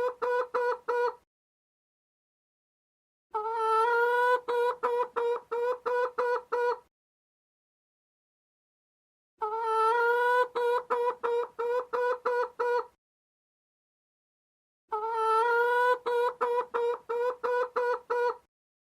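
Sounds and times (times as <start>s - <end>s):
hen clucking: 0.0s - 1.2s, 3.3s - 6.9s, 9.4s - 13.0s, 14.9s - 18.5s.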